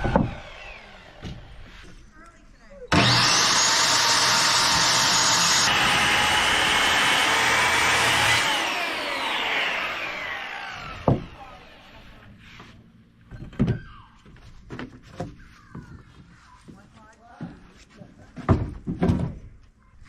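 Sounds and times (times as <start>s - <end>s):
table saw cutting wood: 0.0s - 1.5s, 2.9s - 12.2s
saw blade whine spinning down: 0.1s - 1.2s, 2.9s - 12.2s.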